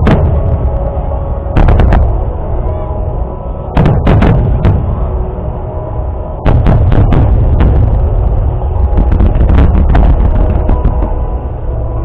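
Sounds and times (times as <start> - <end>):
fireworks booming and cracking: 0.0 - 2.3, 3.8 - 5.1, 6.4 - 11.6
music: 0.0 - 12.0.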